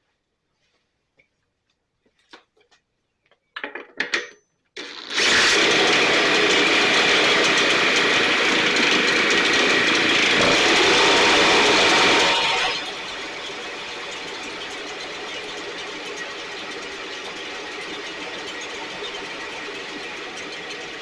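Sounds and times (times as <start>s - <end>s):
blower engine running: 4.8s - 21.0s
engine pull-start bursts: 4.8s - 21.0s.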